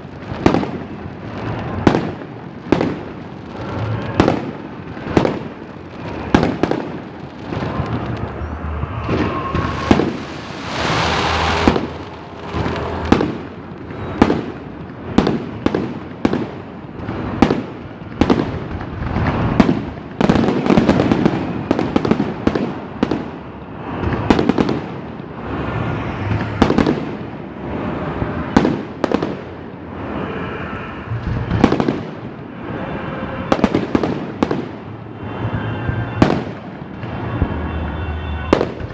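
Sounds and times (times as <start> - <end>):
fireworks crackling: 0.0 - 38.9
firework shells bursting: 5.0 - 15.4.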